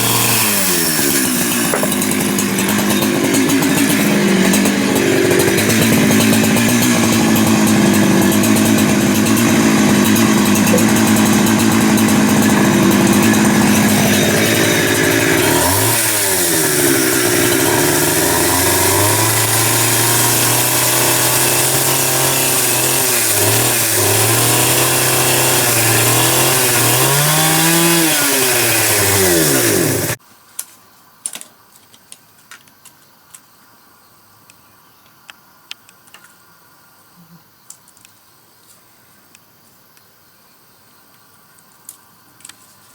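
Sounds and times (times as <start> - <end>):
power tool motor cutting wood: 0.0 - 30.2.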